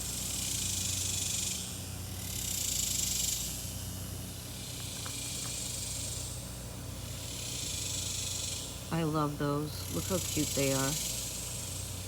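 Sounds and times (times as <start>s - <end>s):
cicadas buzzing in chorus: 0.0s - 12.0s
low steady hum: 8.6s - 12.0s.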